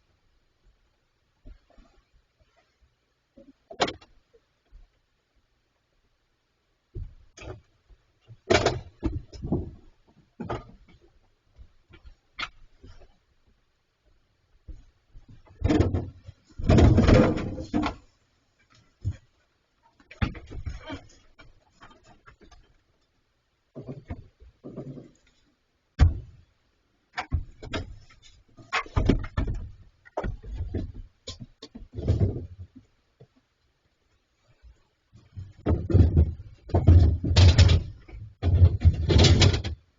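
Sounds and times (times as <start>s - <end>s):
heavy bumps and clatters on refrigerator: 14.7s - 18.0s, 26.0s - 26.4s, 35.4s - 39.8s.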